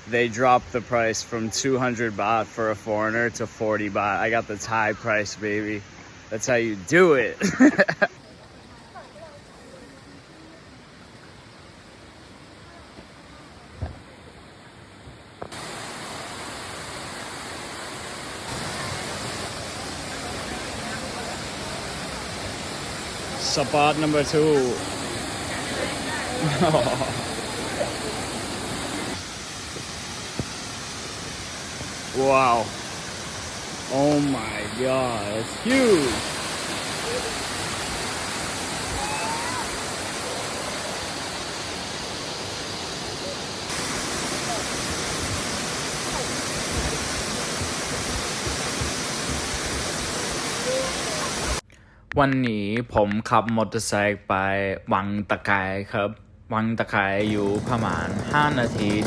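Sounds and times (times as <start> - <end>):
quiet outdoor background: 0.0 - 59.0
waterfall rushing: 6.9 - 51.6, 57.2 - 59.0.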